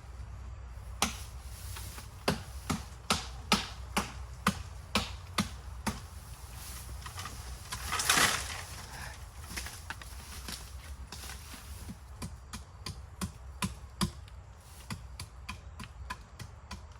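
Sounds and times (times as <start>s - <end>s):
crackling rustle: 0.0s - 12.2s
blade chopping bamboo: 0.9s - 16.9s.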